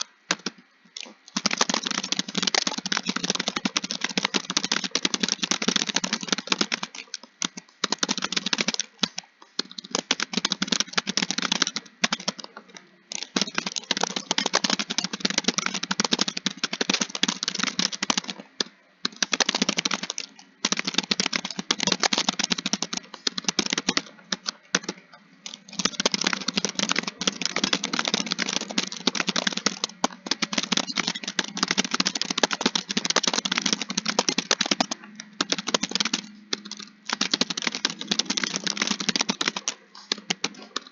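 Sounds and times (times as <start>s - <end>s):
fast typing on a keyboard: 0.0s - 40.9s.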